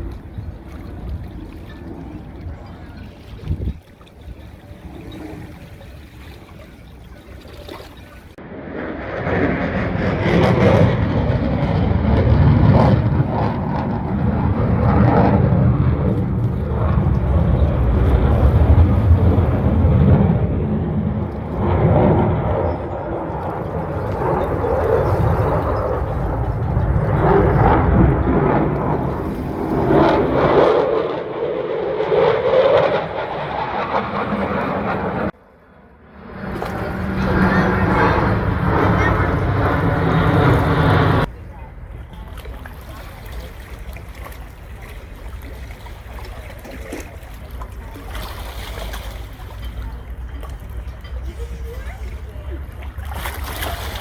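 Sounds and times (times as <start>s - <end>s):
aircraft engine rumble: 0.0s - 54.0s.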